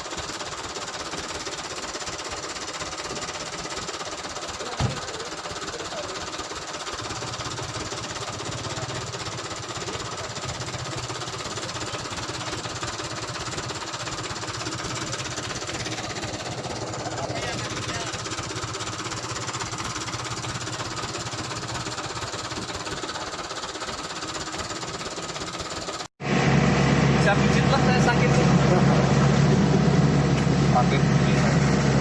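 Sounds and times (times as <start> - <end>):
truck engine pulsing: 0.0 - 32.0
deeper engine note: 26.2 - 32.0.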